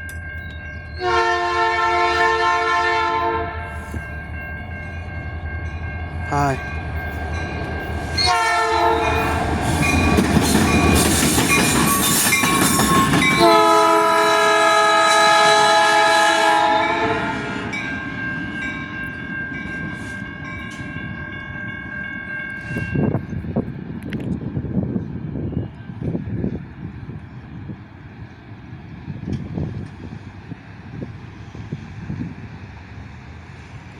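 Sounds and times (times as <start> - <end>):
freight train wheel and rail noise: 0.0 - 33.9
locomotive horn blast: 1.0 - 4.0, 8.2 - 9.4, 13.4 - 17.8.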